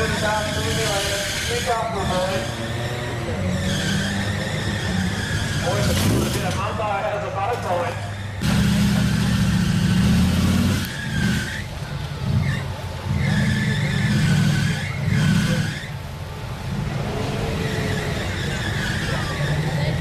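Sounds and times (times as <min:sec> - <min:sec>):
high squeal: 0:00.0 - 0:06.6, 0:10.7 - 0:20.0
truck engine revving hard: 0:00.0 - 0:20.0.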